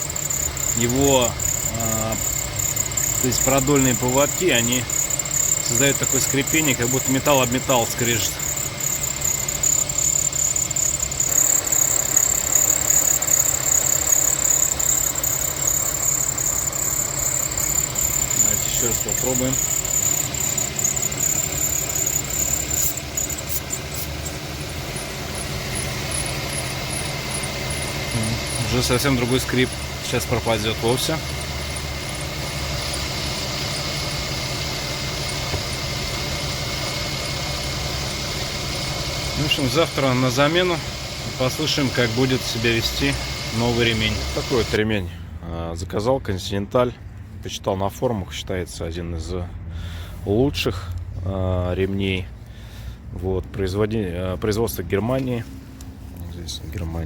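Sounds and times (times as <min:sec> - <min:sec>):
high-pitched drive belt squeal: 0:00.0 - 0:44.9
engine idling: 0:00.0 - 0:45.4.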